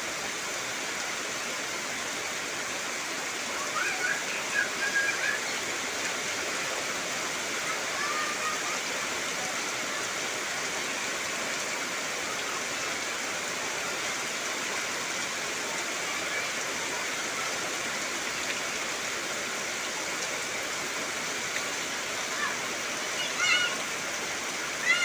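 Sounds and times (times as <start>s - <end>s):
heavy rain falling on trees: 0.0s - 25.0s.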